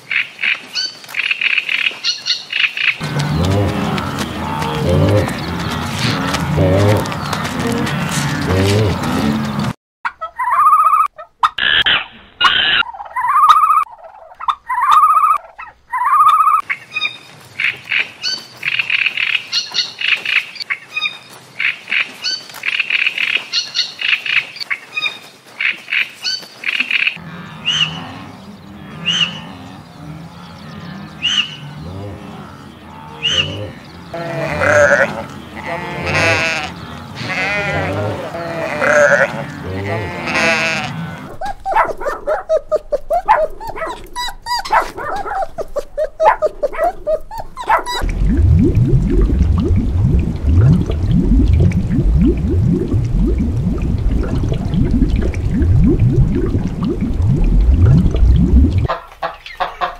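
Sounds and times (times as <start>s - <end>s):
sheep bleating: 32.0s - 41.3s
low pulsing sound: 48.0s - 58.9s.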